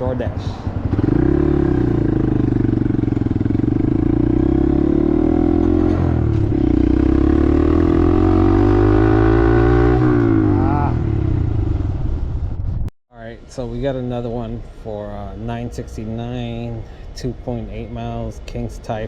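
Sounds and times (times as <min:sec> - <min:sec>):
motorcycle engine running: 0:00.5 - 0:12.6.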